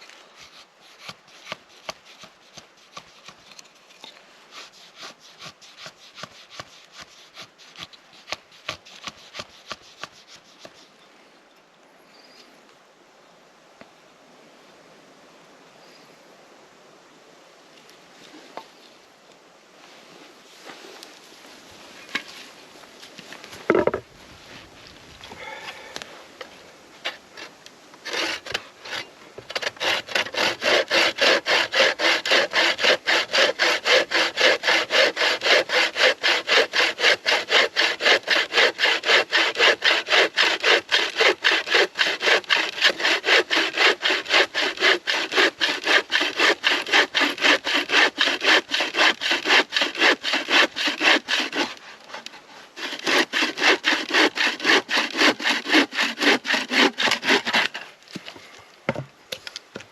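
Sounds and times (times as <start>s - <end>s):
hand saw cutting wood: 0.0s - 10.9s, 23.7s - 24.0s, 27.1s - 58.0s.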